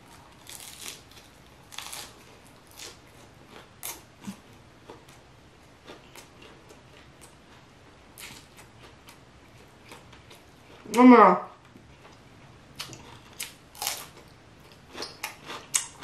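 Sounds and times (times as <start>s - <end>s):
soft chewing: 0.0s - 10.9s, 11.6s - 16.0s
crisp biting crunches: 0.2s - 4.4s, 12.8s - 14.2s.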